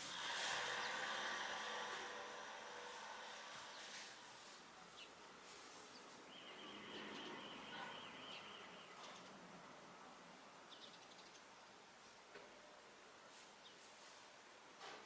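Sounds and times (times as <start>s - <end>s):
background hiss: 0.0s - 15.0s
sparrow chirps: 5.9s - 9.4s.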